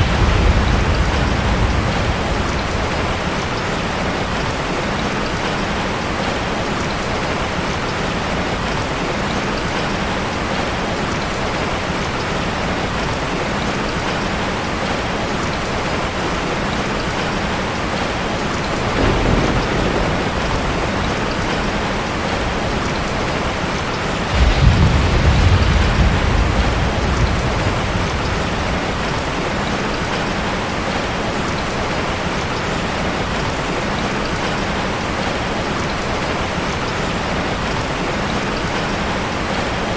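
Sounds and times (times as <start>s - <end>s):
thunder rumbling: 0.0s - 6.6s, 17.0s - 31.2s
heavy rain pouring: 0.0s - 39.9s.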